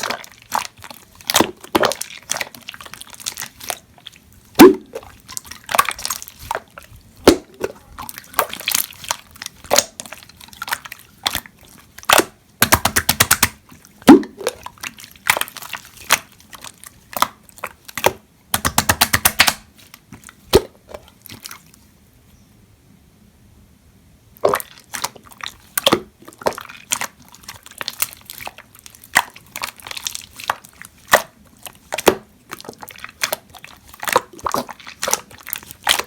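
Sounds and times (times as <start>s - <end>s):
slime popping and clicking: 12.0s - 14.6s.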